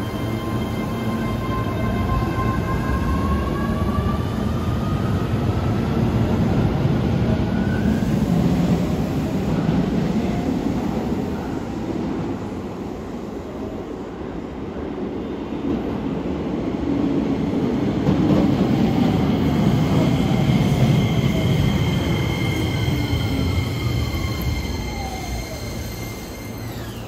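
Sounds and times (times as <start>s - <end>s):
electric train wheel noise: 19.6s - 27.0s
high brake squeal: 19.7s - 27.0s
train motor whine: 21.6s - 27.0s.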